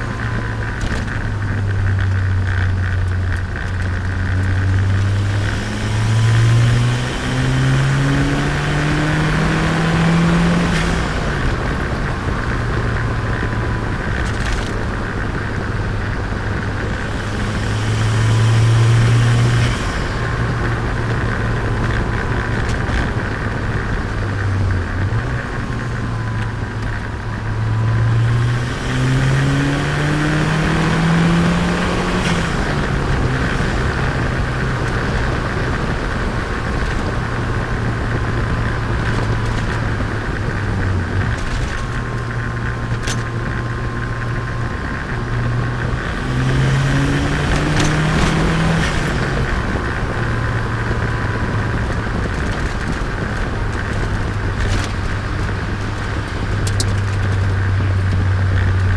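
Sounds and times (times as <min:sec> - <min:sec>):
car engine accelerating: 0:00.0 - 0:58.9.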